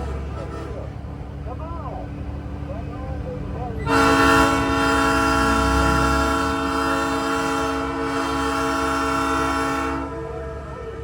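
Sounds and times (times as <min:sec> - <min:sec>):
train horn chord: 0:03.8 - 0:11.0.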